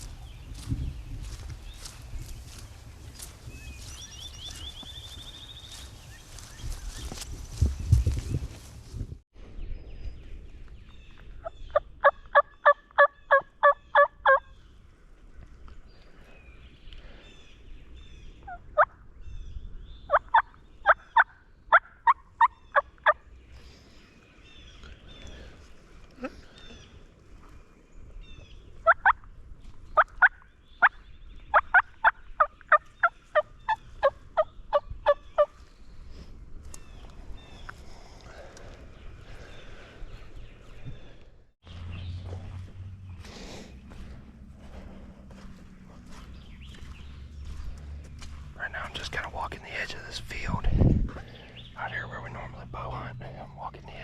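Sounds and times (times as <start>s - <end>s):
turkey call yelps: 12.0s - 14.4s, 28.8s - 29.1s.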